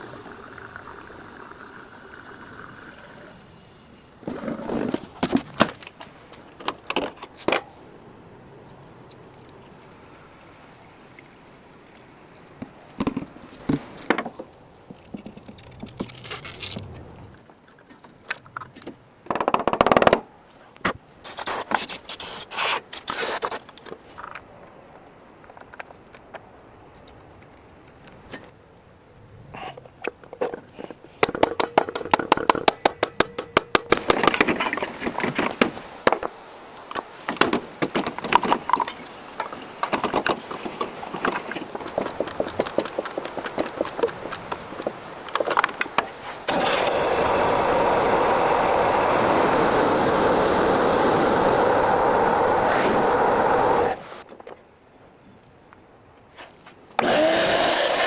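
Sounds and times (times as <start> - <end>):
hand tool scraping and clicking: 14.9 - 18.9
motor-driven tool running: 57.0 - 58.0.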